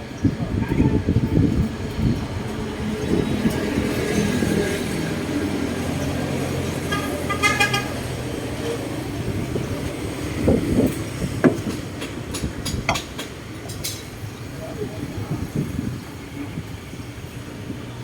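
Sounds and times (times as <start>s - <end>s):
knocks: 11.4s - 13.3s.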